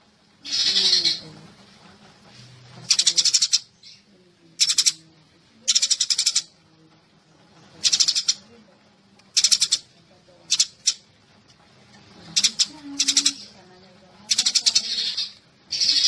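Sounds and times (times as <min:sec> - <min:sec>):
sparrow chirping: 0:00.5 - 0:01.2, 0:02.9 - 0:05.0, 0:05.6 - 0:06.5, 0:07.8 - 0:08.4, 0:09.3 - 0:09.9, 0:10.5 - 0:11.0, 0:12.3 - 0:13.6, 0:14.3 - 0:16.0.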